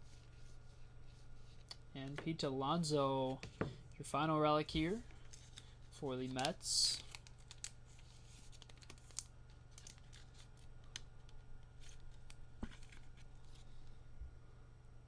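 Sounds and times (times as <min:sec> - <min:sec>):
steady low hum: 0:00.0 - 0:15.0
cards clicking and rustling: 0:04.8 - 0:13.7.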